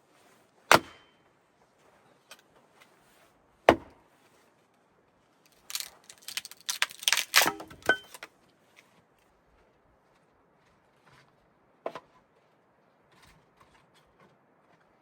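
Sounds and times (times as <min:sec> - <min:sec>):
axe chopping wood: 0:00.7 - 0:01.1, 0:03.7 - 0:03.9
wood knocking and cracking: 0:05.5 - 0:08.3.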